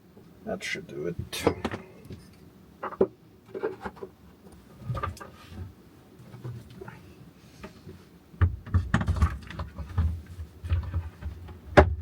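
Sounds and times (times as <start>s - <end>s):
knocks and taps inside van: 8.4s - 12.0s.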